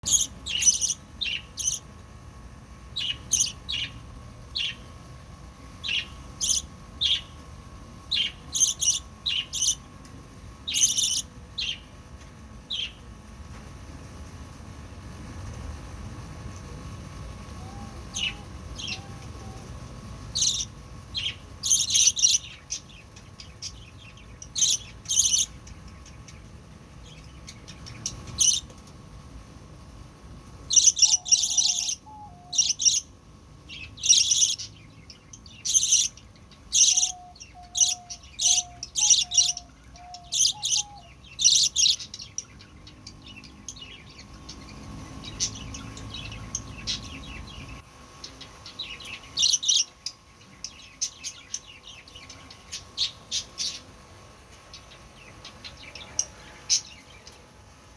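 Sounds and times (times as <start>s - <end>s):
high-pitched bird chirps: 0.0s - 1.8s, 5.8s - 7.4s, 8.1s - 9.8s, 10.7s - 11.9s, 17.6s - 19.6s, 20.3s - 22.9s, 30.7s - 33.1s, 35.4s - 53.9s.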